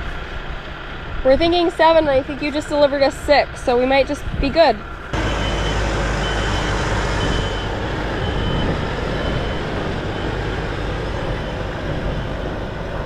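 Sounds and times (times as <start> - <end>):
vehicle engine deep rumble: 0.0 - 13.0
high beep: 5.2 - 10.6.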